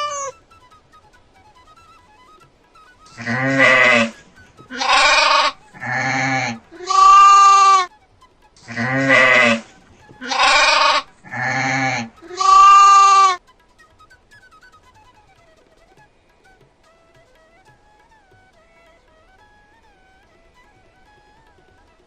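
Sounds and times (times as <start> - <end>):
goat bleating: 0.0 - 0.4, 3.1 - 7.9, 8.6 - 13.4.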